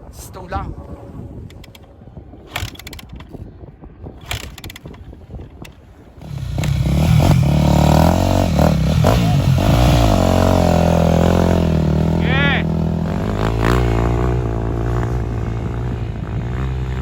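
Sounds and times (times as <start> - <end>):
dirt bike engine revving: 6.2 - 17.0.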